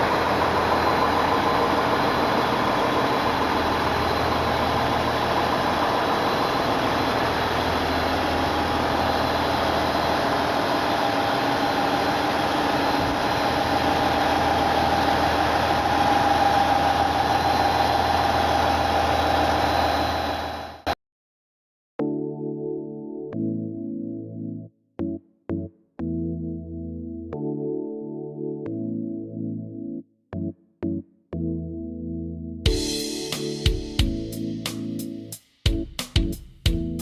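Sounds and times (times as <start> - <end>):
train diesel engine humming: 0.0 - 21.0.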